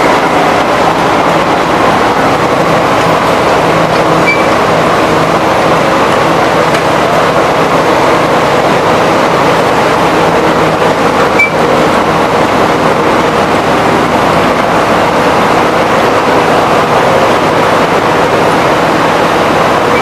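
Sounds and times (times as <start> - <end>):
mill machinery din: 0.0 - 20.0
high squeak: 4.2 - 4.6, 11.4 - 11.6.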